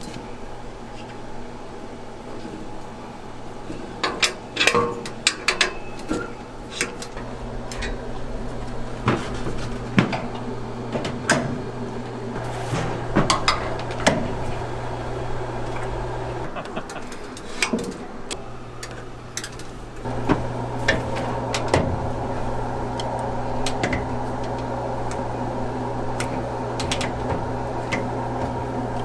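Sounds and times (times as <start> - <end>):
low machine hum: 5.7 - 29.0
utensils knocking and clinking: 12.4 - 14.7.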